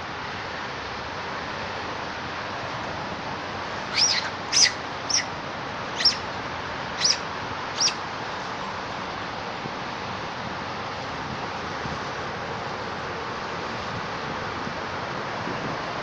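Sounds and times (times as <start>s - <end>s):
bird chirping: 3.9s - 5.3s, 6.0s - 6.3s, 7.0s - 7.2s, 7.8s - 8.0s.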